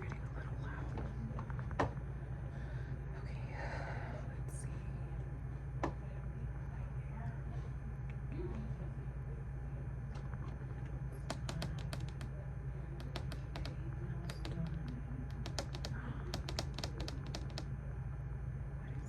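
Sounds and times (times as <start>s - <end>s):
steady low hum: 0.0s - 19.0s
keyboard keystroke clicks: 11.2s - 12.3s, 13.0s - 17.7s.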